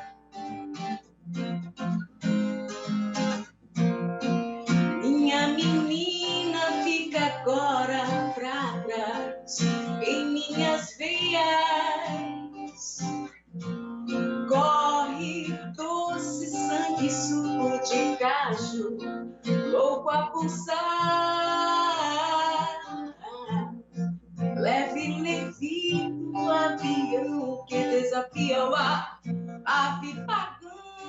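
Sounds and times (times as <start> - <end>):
strummed acoustic guitar: 0.0 - 31.0
woman singing: 4.9 - 13.3, 14.3 - 23.8, 24.4 - 31.0.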